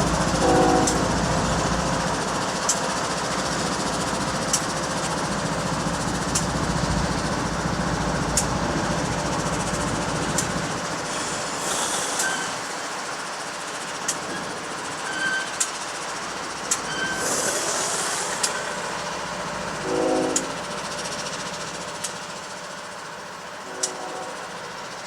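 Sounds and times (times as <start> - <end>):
diesel locomotive rumbling: 0.0 - 25.0
sharp clicks: 18.3 - 18.6.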